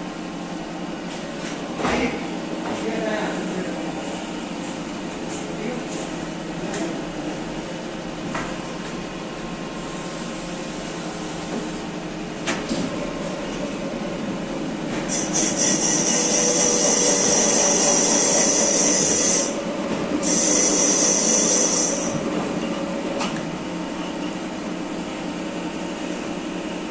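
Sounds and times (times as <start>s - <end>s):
steady machine hum: 0.0s - 26.9s
high-pitched power tool: 15.1s - 19.6s, 20.2s - 22.2s.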